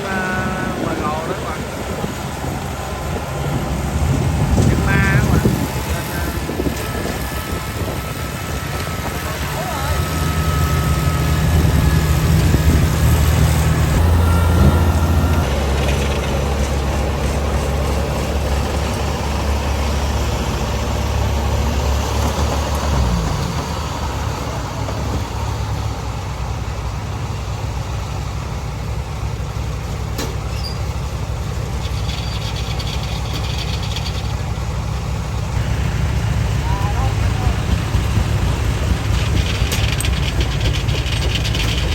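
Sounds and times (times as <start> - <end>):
harvester diesel engine humming: 0.0 - 41.9.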